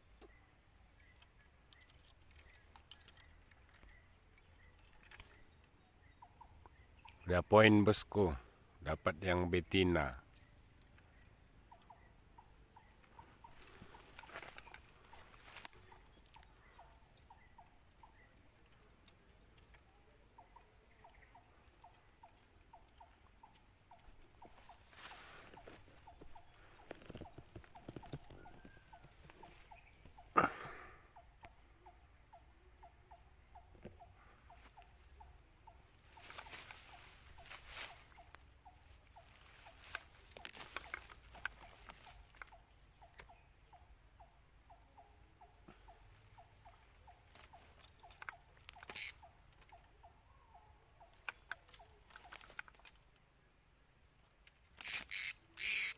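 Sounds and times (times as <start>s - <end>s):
insects buzzing high-pitched: 0.0s - 55.9s
knocks and rustles: 24.4s - 29.6s.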